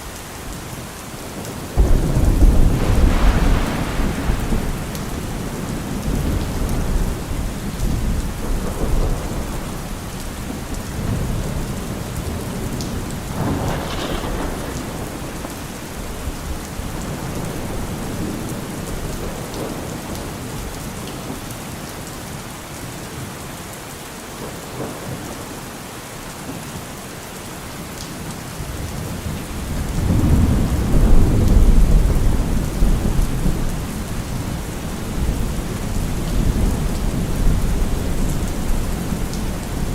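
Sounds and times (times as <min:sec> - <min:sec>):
heavy rain on a car roof: 0:00.0 - 0:39.9
rolling thunder: 0:01.8 - 0:20.7, 0:29.2 - 0:39.9.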